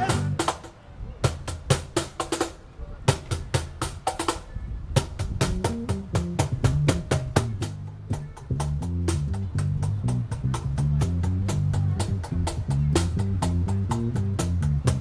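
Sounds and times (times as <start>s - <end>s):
bass line: 0.0s - 0.4s, 5.4s - 15.0s
drum kit playing a steady beat: 0.0s - 15.0s.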